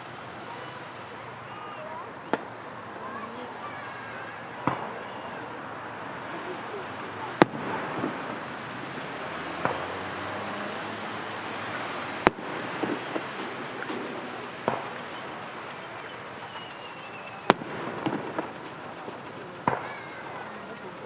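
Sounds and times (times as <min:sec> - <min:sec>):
small firework pops: 0:00.4 - 0:10.7, 0:12.1 - 0:21.0
firework shell bursts: 0:12.1 - 0:21.0
falling firework whistle: 0:12.2 - 0:21.0.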